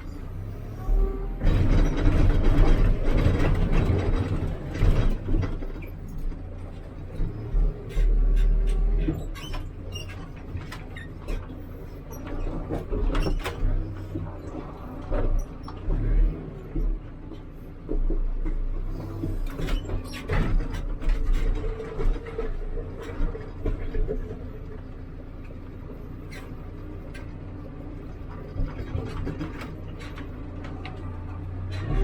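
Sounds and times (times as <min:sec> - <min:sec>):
diesel engine running: 0:00.0 - 0:32.0
machine clanks and knocks: 0:01.4 - 0:06.4, 0:18.0 - 0:24.5.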